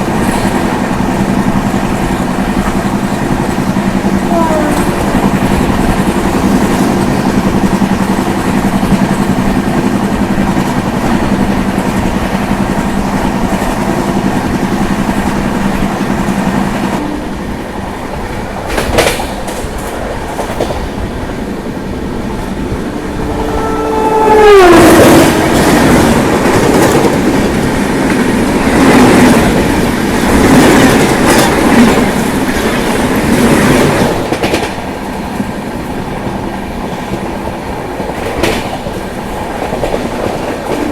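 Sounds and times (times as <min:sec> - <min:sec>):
train passing with steady drone: 0:00.0 - 0:40.9
train horn: 0:04.2 - 0:05.3, 0:17.0 - 0:17.5, 0:22.8 - 0:26.2.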